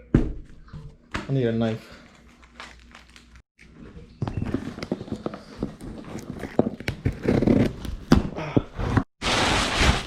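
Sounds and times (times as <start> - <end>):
cardboard being cut and opened: 6.0 - 8.2, 8.8 - 10.0.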